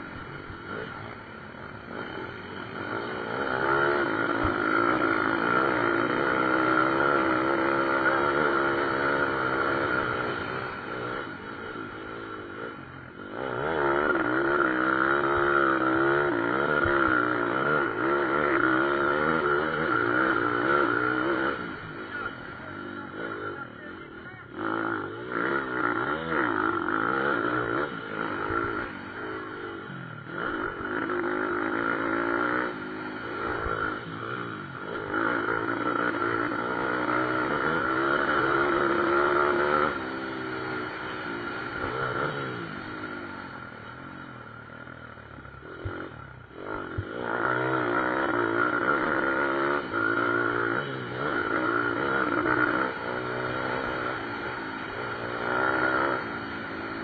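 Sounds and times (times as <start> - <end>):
small motorcycle engines revving: 0.0 - 57.0.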